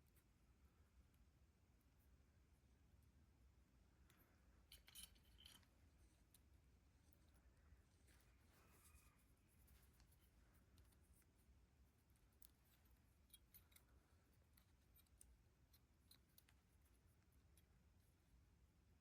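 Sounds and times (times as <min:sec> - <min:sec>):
small parts clicking: 0:04.0 - 0:06.5, 0:12.1 - 0:17.8.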